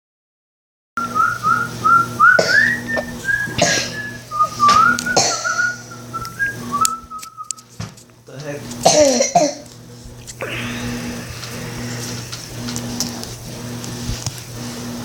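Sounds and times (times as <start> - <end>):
person whistling a tune: 1.0 - 7.6
steady low hum: 1.0 - 15.0.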